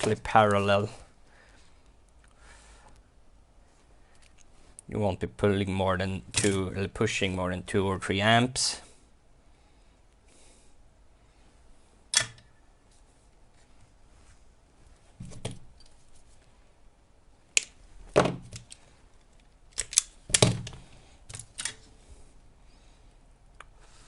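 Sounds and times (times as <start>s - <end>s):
hand tools snipping wire: 19.7s - 21.8s.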